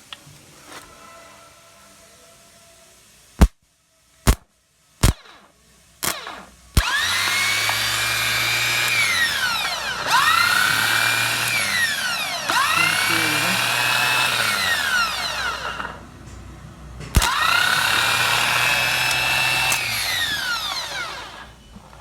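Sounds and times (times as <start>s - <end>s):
sharp clicks: 5.0s - 7.9s, 17.2s - 17.7s, 18.9s - 20.3s
electric motor whining: 6.0s - 16.0s, 17.2s - 21.6s.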